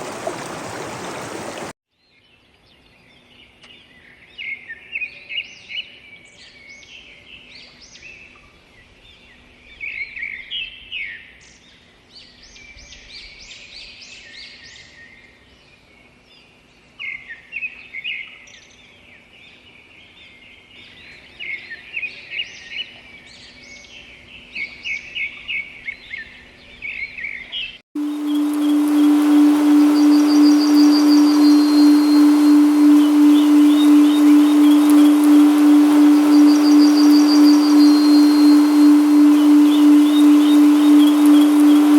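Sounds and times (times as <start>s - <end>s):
faint steady hum: 0.0s - 1.7s, 28.0s - 41.9s
wild birds chirping: 0.0s - 1.7s, 28.0s - 41.9s
music with deep held tone: 28.0s - 41.9s.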